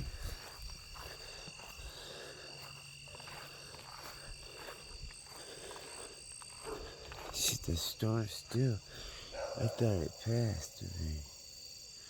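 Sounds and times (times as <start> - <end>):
frogs croaking: 0.0 - 12.0
insects trilling: 0.0 - 12.0.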